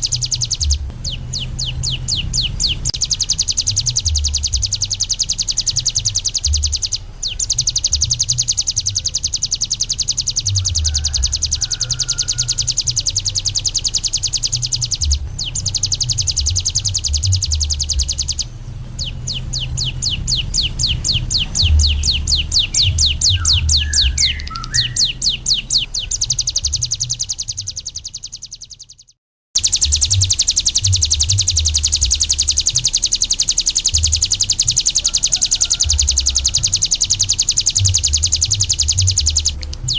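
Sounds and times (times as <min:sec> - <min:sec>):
low irregular rumble: 0:00.0 - 0:08.2, 0:12.5 - 0:27.7
bird trilling song: 0:00.0 - 0:39.9.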